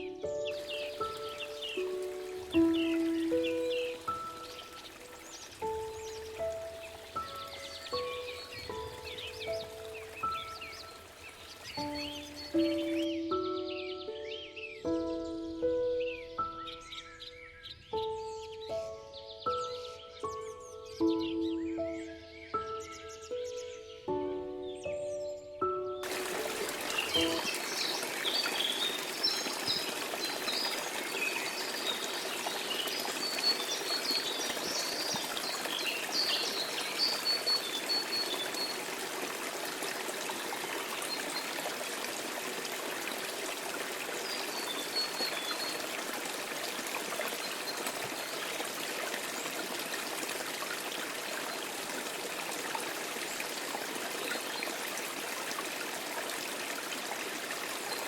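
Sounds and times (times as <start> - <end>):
stream water over rocks: 0.0 - 13.7, 26.0 - 58.0.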